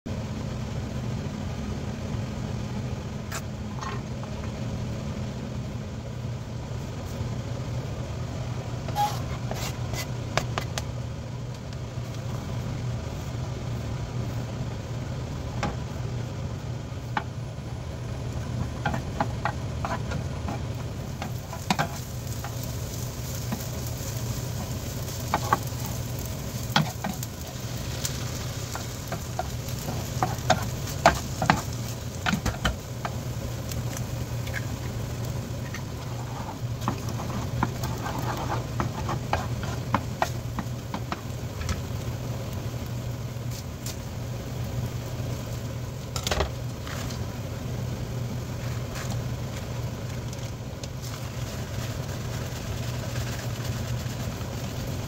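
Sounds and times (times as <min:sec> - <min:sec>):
steady low hum: 0:00.1 - 0:55.0
food sizzling in a pan: 0:18.1 - 0:45.9, 0:50.9 - 0:55.0
utensil clicking and scraping pan: 0:18.7 - 0:23.7, 0:24.5 - 0:33.2, 0:35.6 - 0:41.3.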